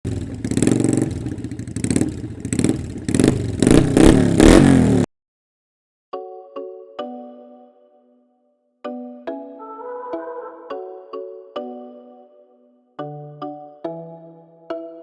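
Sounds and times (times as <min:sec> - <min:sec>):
motorcycle engine revving: 0:00.0 - 0:05.1.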